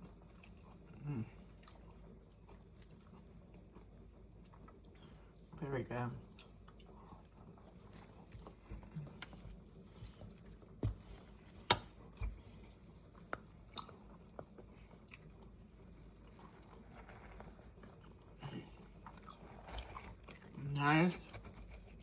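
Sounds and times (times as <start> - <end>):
person chewing: 0.0 - 5.5, 6.3 - 22.0.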